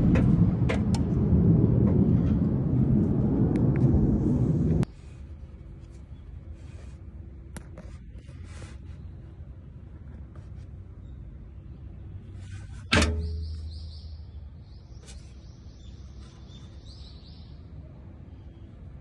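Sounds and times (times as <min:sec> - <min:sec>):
rapid high bird chirping: 0:13.2 - 0:17.6.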